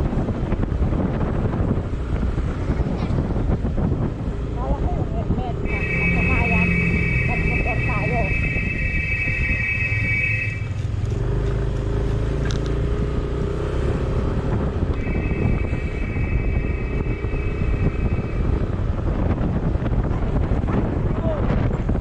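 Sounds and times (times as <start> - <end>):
vehicle engine and road rumble: 0.0 - 22.0
high-pitched tone: 5.6 - 10.7.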